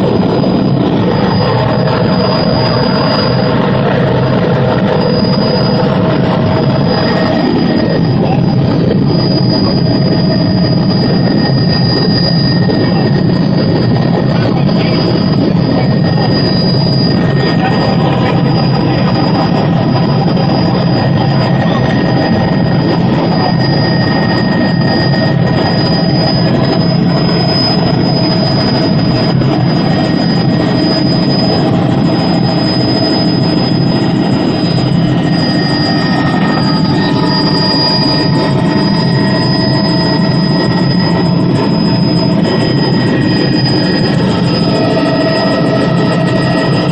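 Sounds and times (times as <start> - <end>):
helicopter engine and rotor drone: 0.0 - 46.9
high-pitched whine: 0.0 - 46.9.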